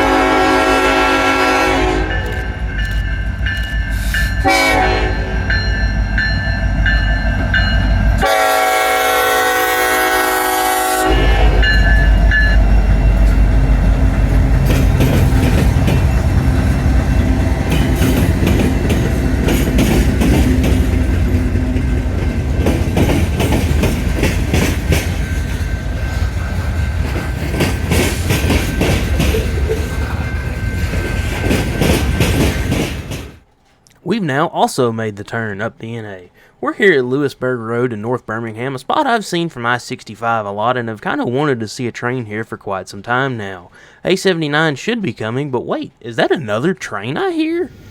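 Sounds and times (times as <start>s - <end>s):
train horn: 0.0s - 2.7s, 4.2s - 5.5s, 8.2s - 18.2s
locomotive engine rumble: 10.2s - 33.4s.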